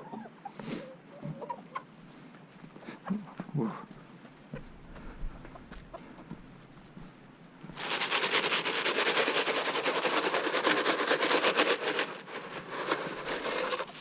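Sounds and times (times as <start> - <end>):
chicken feed grains rattling: 7.6 - 14.0.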